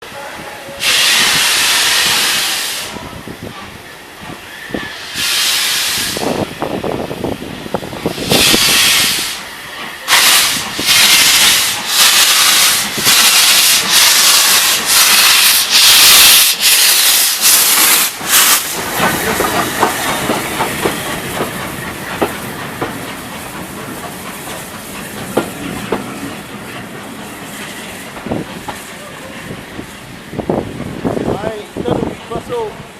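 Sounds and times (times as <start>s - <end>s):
steam locomotive chuffing: 0.6s - 32.9s
wheels clicking on rails: 17.6s - 29.6s.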